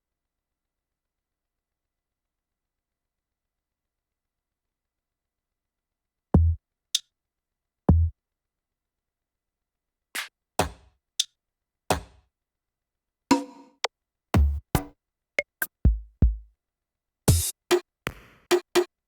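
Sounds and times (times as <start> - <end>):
deep kick drum: 6.4 - 6.6, 14.4 - 14.9, 15.9 - 16.5
snappy electronic drum strikes: 14.4 - 16.4, 17.3 - 18.9.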